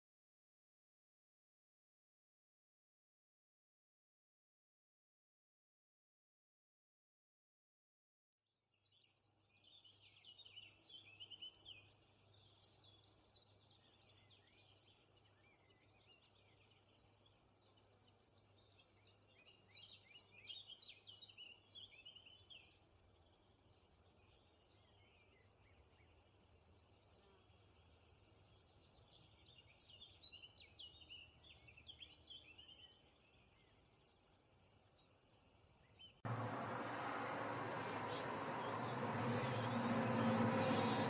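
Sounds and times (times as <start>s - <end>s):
birds chirping: 9.2s - 26.4s, 27.0s - 41.0s
steady low hum: 36.3s - 41.0s.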